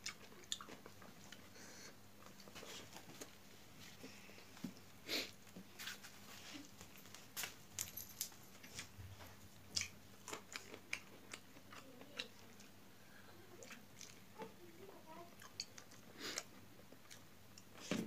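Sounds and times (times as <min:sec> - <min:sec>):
chewing with crunches: 0:00.0 - 0:04.0, 0:08.6 - 0:17.9.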